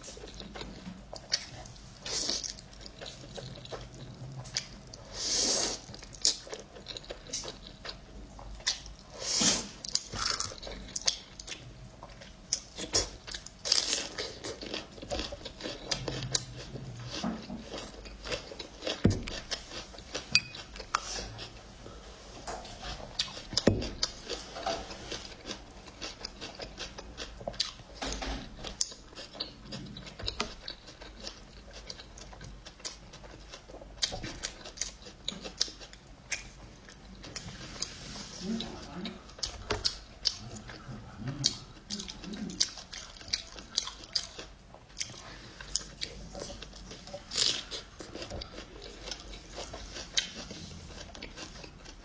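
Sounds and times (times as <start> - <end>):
chewing and slurping noodles: 0.0 - 27.8, 39.2 - 52.0.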